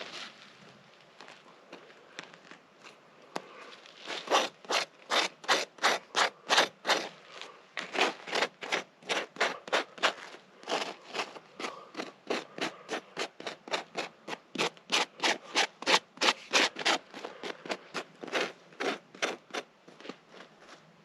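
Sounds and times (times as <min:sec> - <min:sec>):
striker scraping ferro rod: 0:04.1 - 0:07.1, 0:07.8 - 0:19.6.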